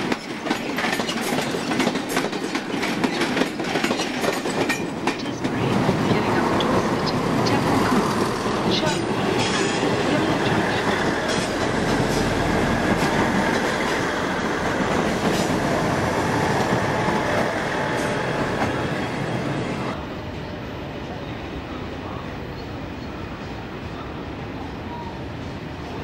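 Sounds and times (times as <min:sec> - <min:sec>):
train wheels rumbling on rail: 0:00.0 - 0:20.5.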